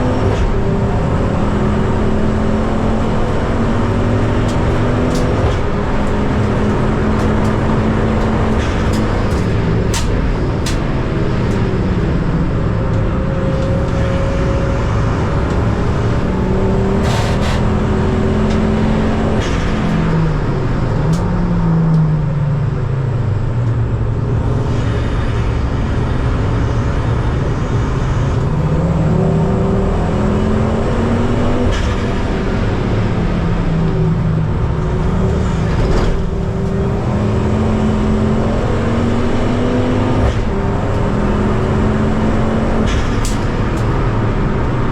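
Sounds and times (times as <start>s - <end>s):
race car engine running hard: 0.0s - 44.9s.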